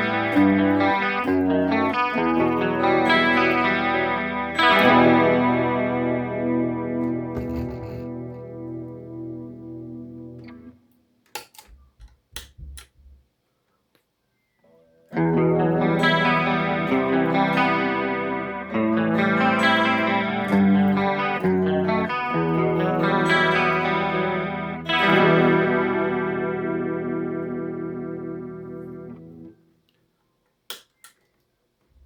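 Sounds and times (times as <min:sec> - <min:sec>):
electric guitar chords: 0:00.0 - 0:10.8, 0:15.1 - 0:29.6.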